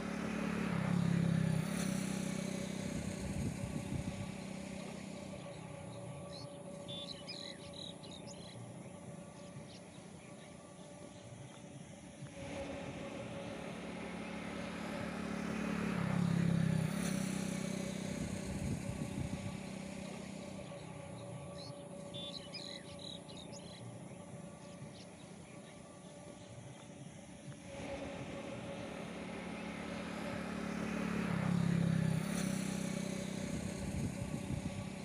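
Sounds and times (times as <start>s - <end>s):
vehicle engine passing: 0.0s - 35.0s
bird chirps: 6.3s - 11.7s, 20.7s - 26.9s.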